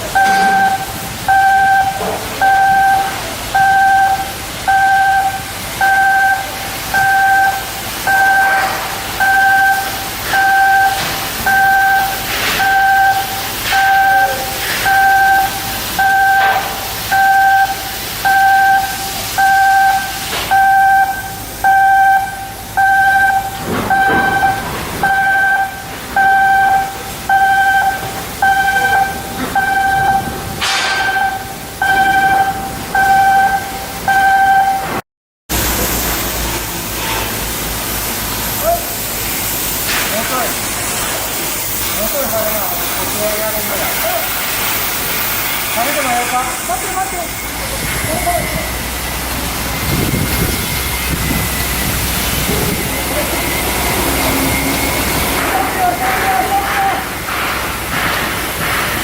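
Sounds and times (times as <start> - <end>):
electronic warning beeper: 0.0 - 34.9, 49.9 - 56.1
higher electronic beeper: 0.0 - 34.9, 49.8 - 56.0
metallic knocks and clanks: 55.2 - 59.0.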